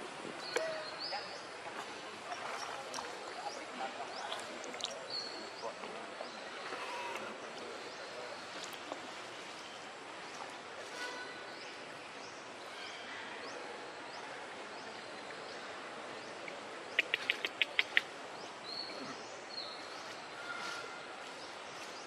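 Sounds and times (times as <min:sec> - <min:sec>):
steady outdoor hiss: 0:00.0 - 0:22.0
birds chirping: 0:14.8 - 0:22.0
bird's rapid sharp notes: 0:17.0 - 0:18.0.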